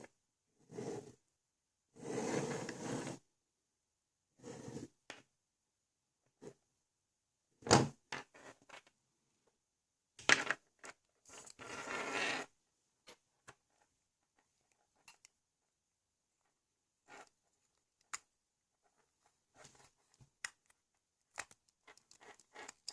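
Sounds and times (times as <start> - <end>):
scraping and rubbing: 2.0 - 3.2, 11.2 - 12.5
plastic parts clicking and knocking: 20.1 - 22.9.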